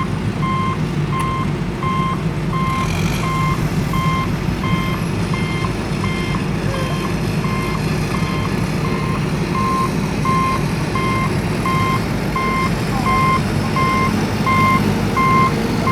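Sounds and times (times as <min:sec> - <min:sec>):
reversing alarm beeping: 0:00.0 - 0:15.9
low rumble: 0:01.1 - 0:06.7.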